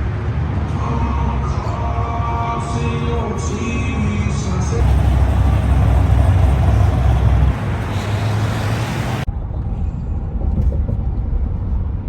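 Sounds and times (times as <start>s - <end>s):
road rumble inside moving car: 0.0s - 12.0s.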